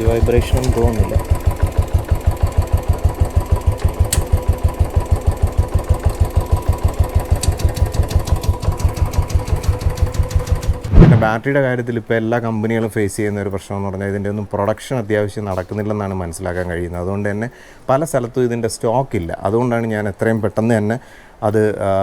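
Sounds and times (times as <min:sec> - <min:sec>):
single-cylinder engine idling: 0:00.0 - 0:10.9.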